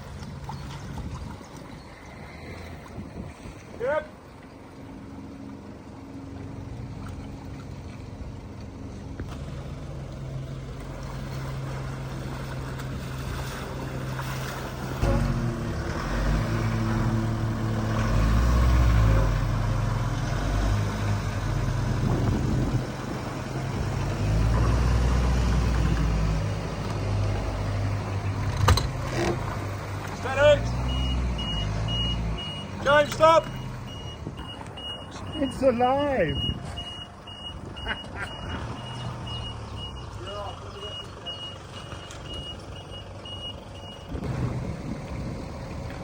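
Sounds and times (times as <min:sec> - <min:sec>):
vehicle engine revving: 0:09.2 - 0:35.7, 0:36.4 - 0:46.0.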